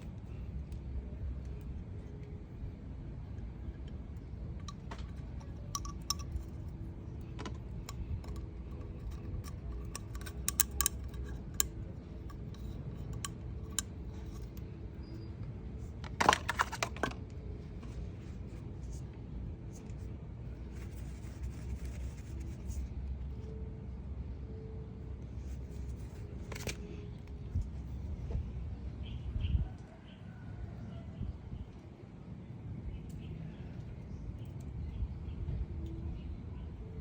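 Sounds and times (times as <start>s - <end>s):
low background rumble: 0.0s - 37.0s
metal tools clinking: 4.7s - 6.7s.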